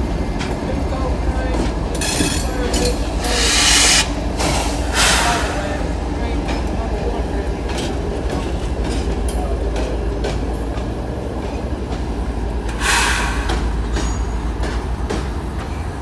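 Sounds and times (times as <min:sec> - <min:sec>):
freight train rumbling past: 0:00.0 - 0:16.0
burst of harsh noise: 0:03.2 - 0:04.2, 0:12.8 - 0:13.6.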